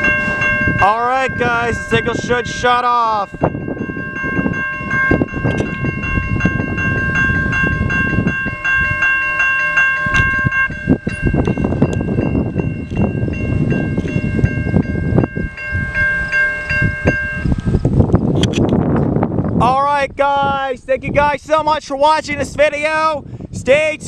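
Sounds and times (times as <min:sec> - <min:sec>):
railroad crossing bells ringing: 0:00.0 - 0:18.0.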